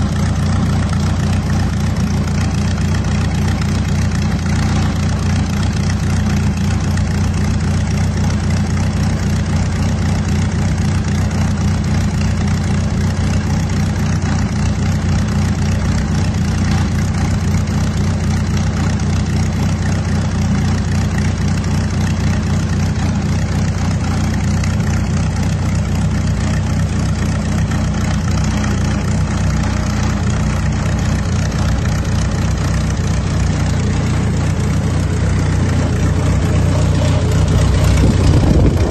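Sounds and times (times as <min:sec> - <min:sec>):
aircraft engine droning: 0:30.5 - 0:38.9.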